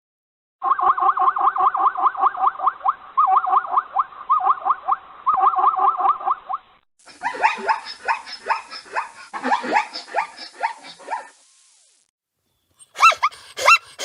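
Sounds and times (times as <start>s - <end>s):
animal chirping: 0.7s - 6.6s.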